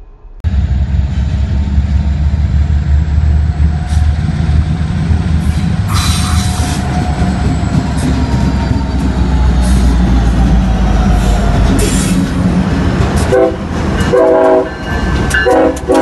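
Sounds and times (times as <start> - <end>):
freight train rumble: 0.0 - 16.0.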